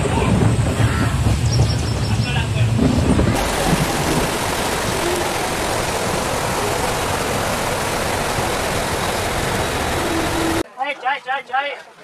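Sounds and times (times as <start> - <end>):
train wheels rushing on rails: 0.0 - 10.6
rain hiss: 2.4 - 10.6.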